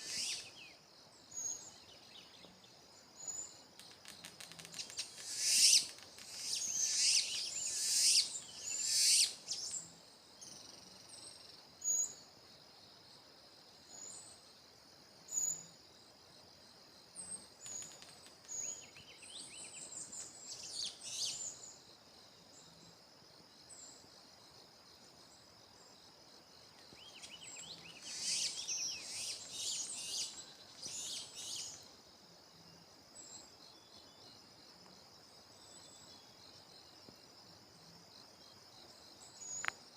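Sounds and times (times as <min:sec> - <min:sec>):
high-pitched insect drone: 0:00.0 - 0:00.6, 0:04.4 - 0:09.7, 0:27.7 - 0:31.8
songbirds warbling: 0:04.8 - 0:09.8, 0:27.0 - 0:31.8.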